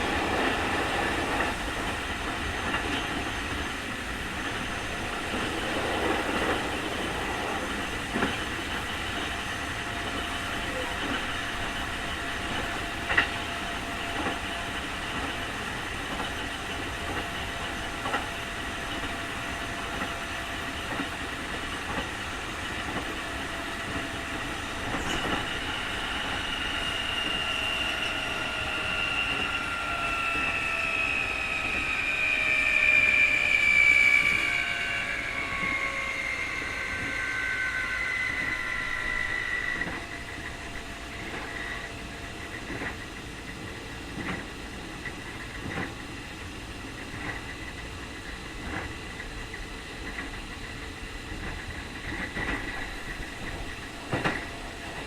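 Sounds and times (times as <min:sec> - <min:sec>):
rail-joint clicks: 0:00.0 - 0:27.4, 0:38.3 - 0:55.0
train running rumble: 0:00.0 - 0:55.0
traction motor whine: 0:24.4 - 0:41.9.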